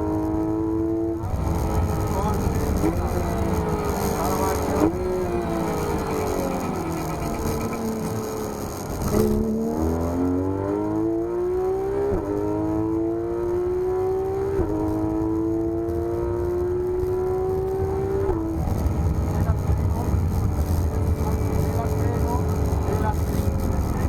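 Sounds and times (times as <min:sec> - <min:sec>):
sports car engine accelerating: 0:00.0 - 0:24.0.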